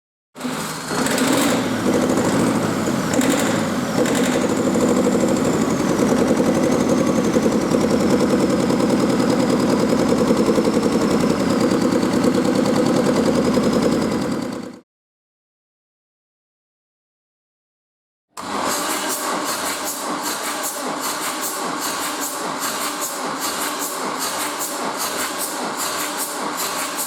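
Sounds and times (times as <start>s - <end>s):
diesel engine idling: 0.7s - 14.8s.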